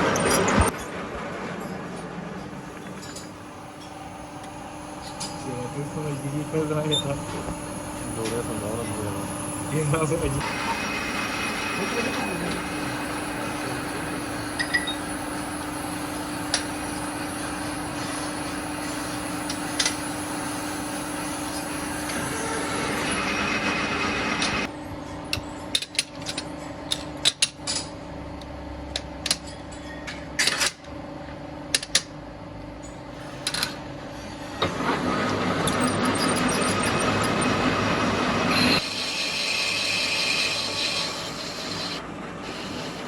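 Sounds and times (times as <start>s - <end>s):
machine hum: 0.0s - 24.9s
dense workshop working noise: 0.0s - 43.0s.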